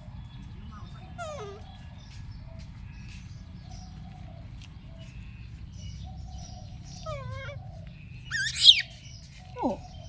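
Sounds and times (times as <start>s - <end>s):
young animal whimpering squeaks: 0.8s - 1.7s, 7.0s - 7.6s, 8.3s - 8.9s, 9.6s - 9.9s.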